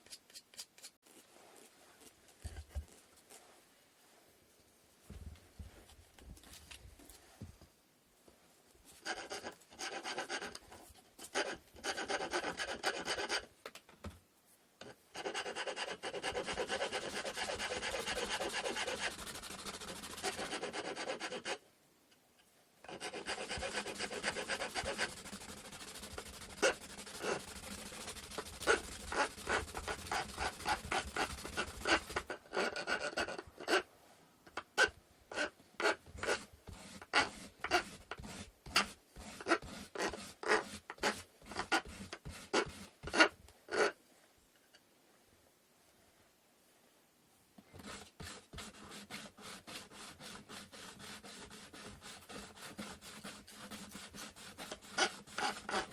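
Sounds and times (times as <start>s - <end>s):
hand tool rasping on wood: 15.2s - 21.6s, 22.9s - 33.8s, 47.8s - 55.9s.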